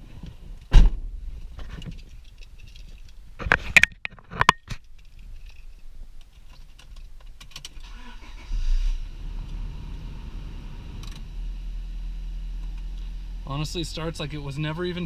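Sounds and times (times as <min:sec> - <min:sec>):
car engine cranking and starting: 0:07.4 - 0:14.3.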